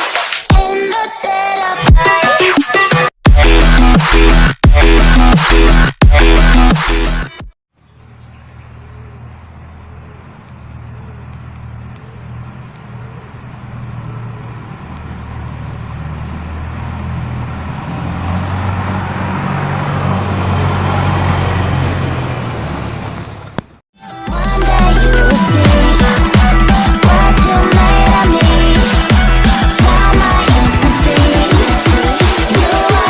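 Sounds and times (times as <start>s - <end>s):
boat engine droning: 7.8s - 23.8s.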